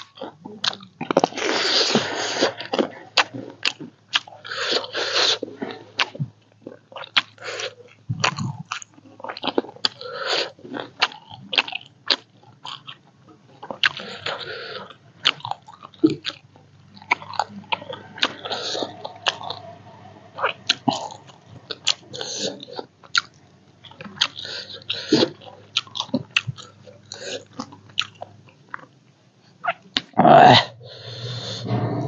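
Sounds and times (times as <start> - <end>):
person chewing and biting: 6.0 - 19.6, 20.4 - 29.0.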